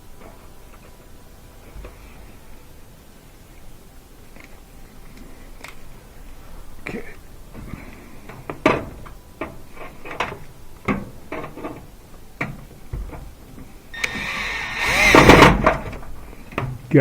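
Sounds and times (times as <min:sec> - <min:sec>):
power screwdriver whirring: 0:14.0 - 0:15.8.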